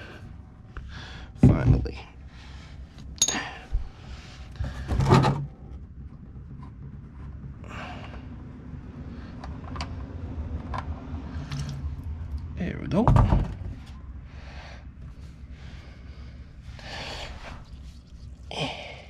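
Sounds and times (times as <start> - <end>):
metallic clinks of tools: 3.2 - 3.6.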